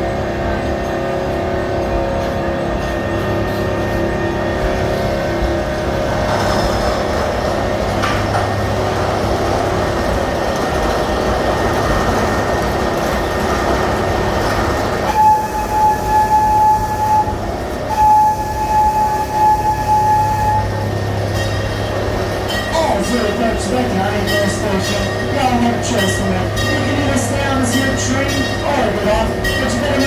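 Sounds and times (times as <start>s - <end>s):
train rumbling along track: 0.0s - 30.0s
high steady tone: 22.5s - 30.0s.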